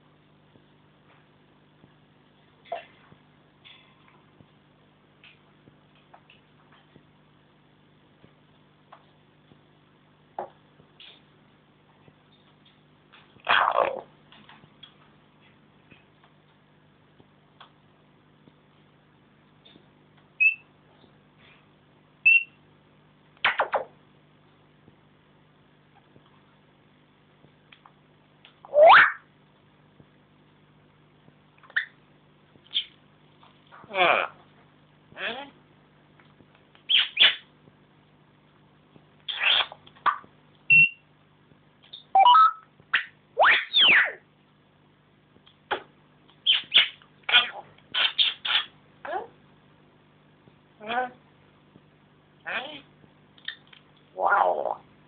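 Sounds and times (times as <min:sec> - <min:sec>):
parrot whistling: 0:20.4 - 0:20.6, 0:22.2 - 0:22.6, 0:36.9 - 0:37.4, 0:40.7 - 0:41.0, 0:41.9 - 0:44.2, 0:46.4 - 0:47.0.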